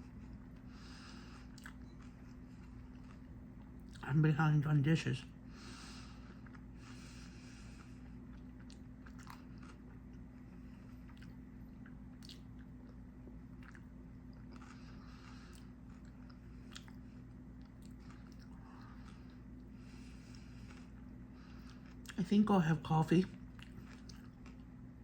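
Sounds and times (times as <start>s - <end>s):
chewing and biting food: 0.0s - 4.0s, 6.0s - 22.2s, 23.2s - 25.0s
steady low hum: 0.0s - 25.0s
wet mouth clicks: 12.2s - 12.5s.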